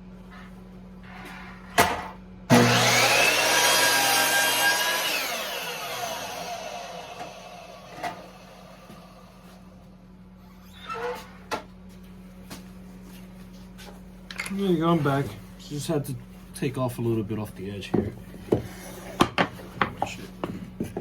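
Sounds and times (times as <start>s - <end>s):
power saw cutting wood: 2.5s - 9.5s
saw winding down whine: 2.5s - 9.6s.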